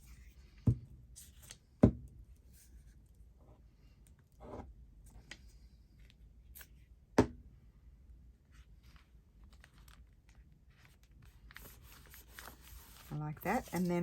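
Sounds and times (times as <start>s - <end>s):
paper rustling: 8.7s - 14.0s.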